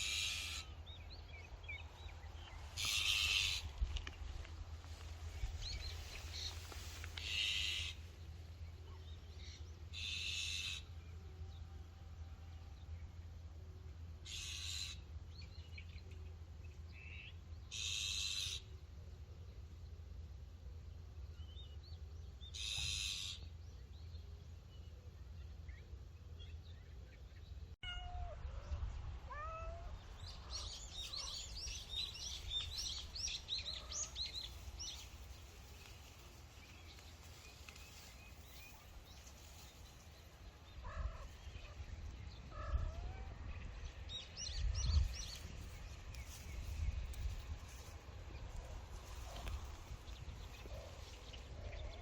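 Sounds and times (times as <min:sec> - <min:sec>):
low wind rumble: 0:00.0 - 0:09.9, 0:23.6 - 0:52.0
cat meowing: 0:27.8 - 0:28.7, 0:29.3 - 0:30.0.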